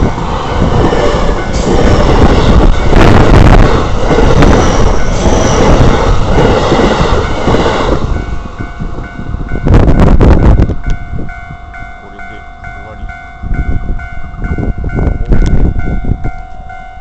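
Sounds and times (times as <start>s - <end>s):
train wheels clattering and rumbling: 0.0s - 11.3s
crossing warning bell ringing: 0.0s - 17.0s.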